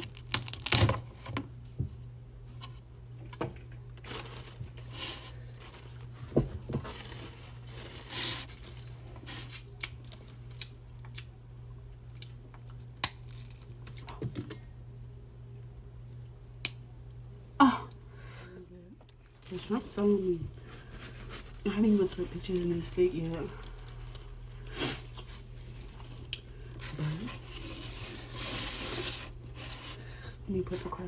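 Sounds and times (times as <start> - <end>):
crinkly rustling and tearing: 0.0 - 1.3, 4.0 - 10.7, 19.2 - 31.0.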